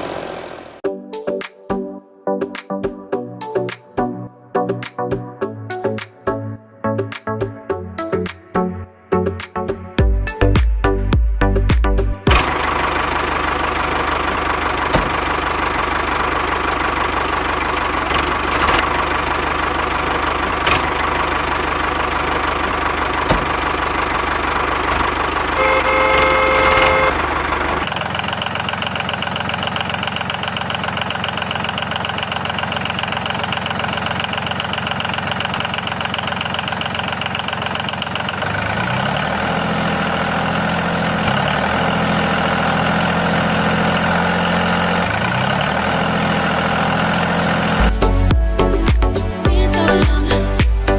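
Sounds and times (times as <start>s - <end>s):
small engine running: 12.3s - 48.0s
horn-like tone: 25.6s - 27.2s.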